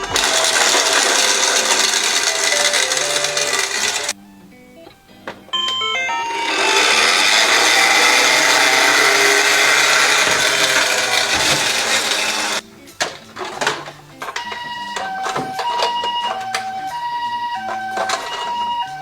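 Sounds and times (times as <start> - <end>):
loud mechanical whirring: 0.0 - 4.1, 6.3 - 12.6
scattered clicks: 0.0 - 4.2.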